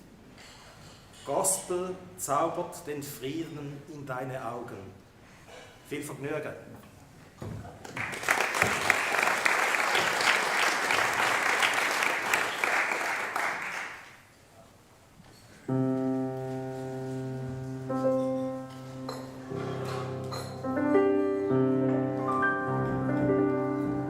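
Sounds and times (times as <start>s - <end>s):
audience applause: 7.9s - 14.2s
keyboard sustained chords: 15.7s - 24.0s.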